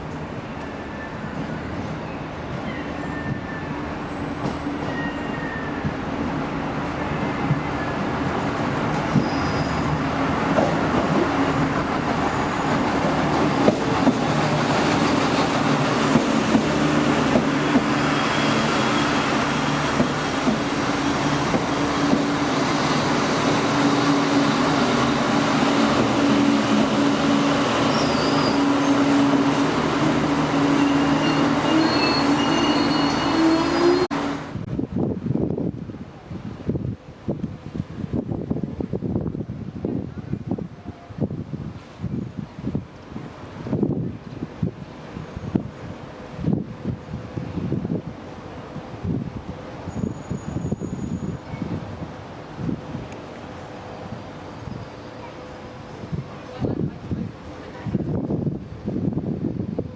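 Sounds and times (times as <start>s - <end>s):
train humming: 0.0s - 59.9s
faint high wheel squeals: 2.0s - 3.8s, 4.8s - 5.9s, 9.1s - 10.0s, 27.9s - 29.0s, 30.7s - 34.1s, 49.8s - 51.8s, 54.4s - 55.5s.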